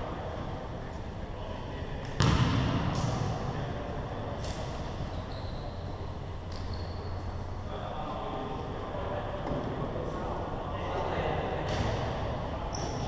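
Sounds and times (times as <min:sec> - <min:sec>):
noise of play in gymnasium: 0:00.0 - 0:13.0
basketball bang echoing: 0:02.2 - 0:03.4.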